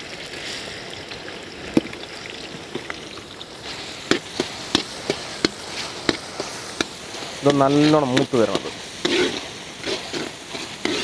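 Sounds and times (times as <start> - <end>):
garlic sizzling in oil: 0.0 - 11.0
metal ladle scraping pan: 3.6 - 11.0.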